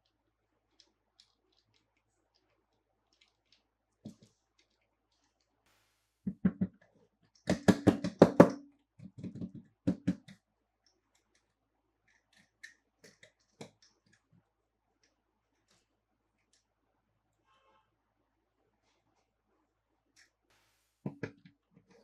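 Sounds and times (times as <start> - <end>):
toy cars and packaging clicking: 0.0 - 5.6.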